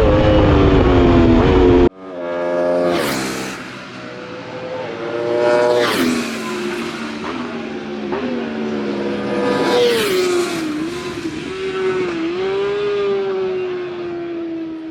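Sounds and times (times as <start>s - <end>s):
motorbike engines racing: 0.0s - 14.9s.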